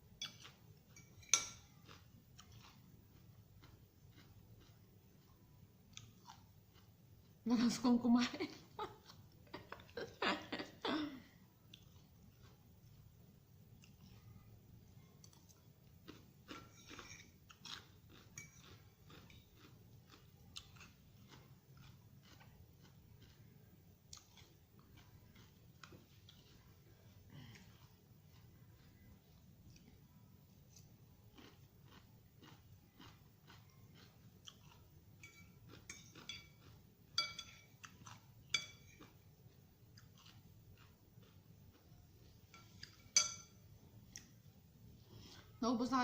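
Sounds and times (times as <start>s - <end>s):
chewing crisp vegetables: 0.0s - 43.2s, 43.8s - 45.6s
utensil clinking on a dish: 0.9s - 1.7s, 16.6s - 17.4s, 18.3s - 18.8s, 35.2s - 37.8s, 38.5s - 39.1s, 42.5s - 43.6s.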